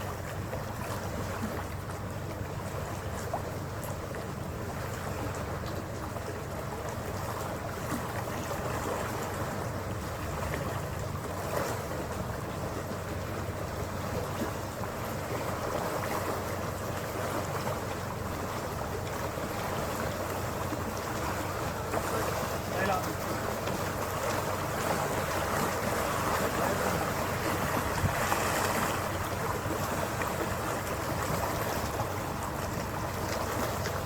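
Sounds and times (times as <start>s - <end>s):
ferry engine drone: 0.0s - 34.0s
water rushing along hull: 0.0s - 34.0s
wind buffeting microphone: 6.5s - 34.0s.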